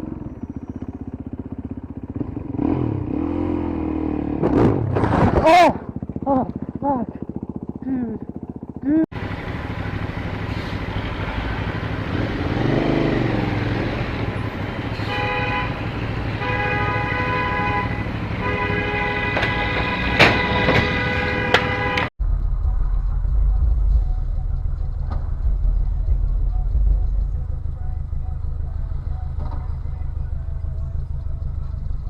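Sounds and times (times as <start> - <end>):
road and engine noise: 0.0 - 32.0
car horn honking: 14.3 - 22.1.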